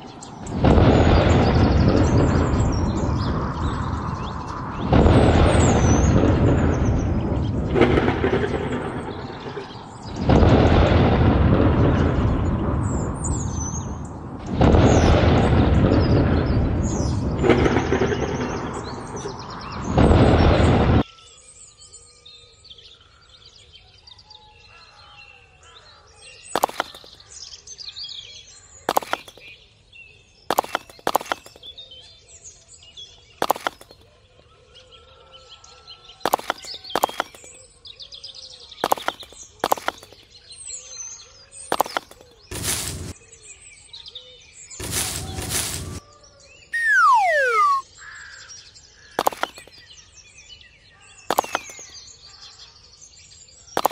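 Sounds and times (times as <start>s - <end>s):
birdsong: 0.0s - 10.8s, 11.8s - 53.9s
sharp clicks of bricks set down: 26.6s - 27.1s, 28.9s - 29.4s, 30.5s - 31.6s, 33.4s - 34.0s, 36.3s - 37.5s, 38.8s - 40.2s, 41.7s - 43.1s
short bursts of noise: 41.8s - 43.2s, 44.8s - 46.0s, 46.8s - 47.8s
falling whistles: 46.8s - 47.8s.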